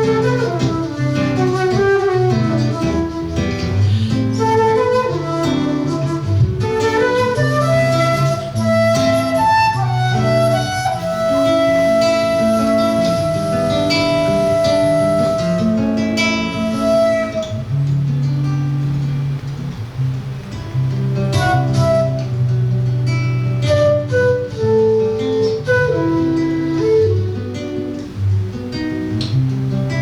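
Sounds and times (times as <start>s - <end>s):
flute holding long note: 0.0s - 17.8s, 21.3s - 22.6s, 23.5s - 28.0s
plucked acoustic guitar: 0.0s - 30.0s.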